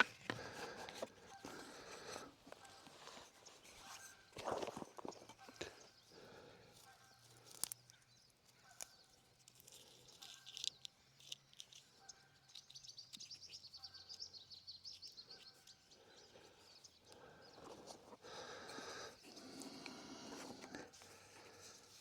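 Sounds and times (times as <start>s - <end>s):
soft rustling: 17.6s - 22.0s.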